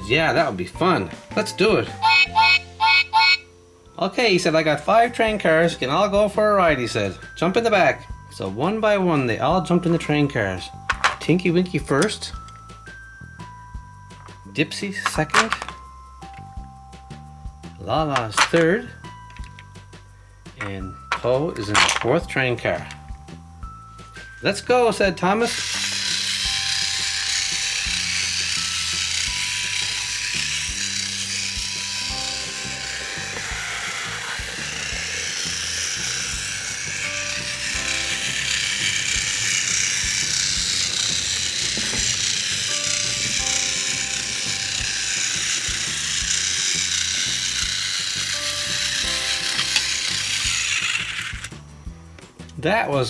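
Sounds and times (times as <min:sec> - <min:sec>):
toy train motor whir: 0:00.0 - 0:16.6, 0:17.2 - 0:52.6
background music: 0:00.0 - 0:53.0.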